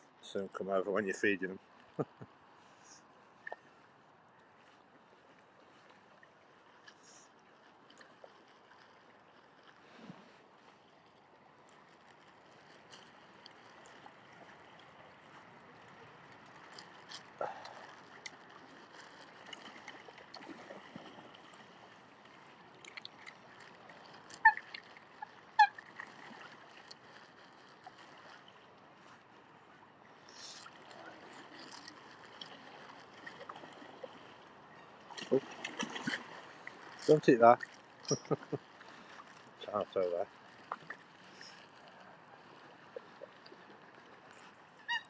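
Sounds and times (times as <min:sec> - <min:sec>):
water splashes: 0:00.0 - 0:45.0
waterbird calls: 0:22.5 - 0:26.6, 0:33.8 - 0:36.8, 0:37.4 - 0:39.1, 0:41.2 - 0:45.0.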